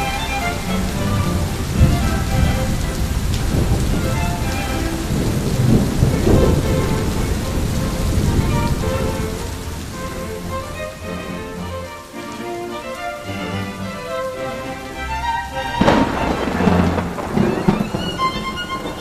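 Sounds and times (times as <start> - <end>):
thunder rumbling: 0.0 - 11.6, 14.0 - 19.0
steady rain: 0.0 - 19.0.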